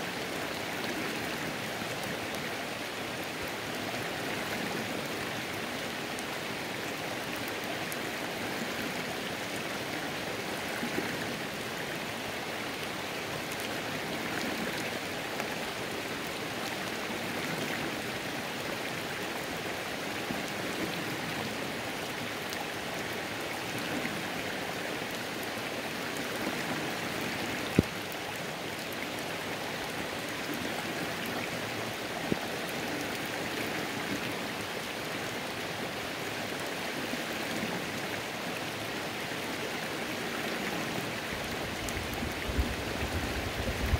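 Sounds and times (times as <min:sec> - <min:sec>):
creek water rushing: 0:00.0 - 0:43.9
rain pattering: 0:00.1 - 0:36.7, 0:37.9 - 0:43.9
sharp drip-like ticks: 0:27.6 - 0:29.2.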